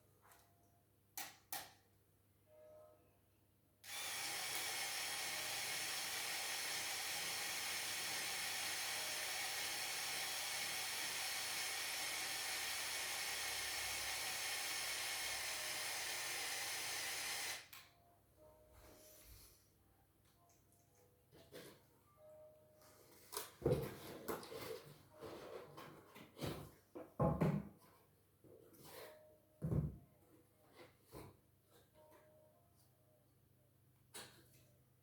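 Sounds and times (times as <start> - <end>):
small electric motor whirring: 3.8 - 17.7.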